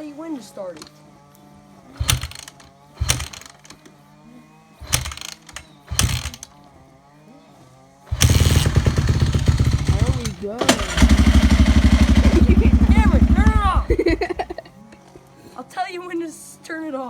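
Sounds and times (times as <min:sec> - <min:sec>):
dirt bike kick-start: 0:01.9 - 0:04.0, 0:04.8 - 0:06.7, 0:08.1 - 0:14.7
dirt bike engine running loudly: 0:08.1 - 0:14.6.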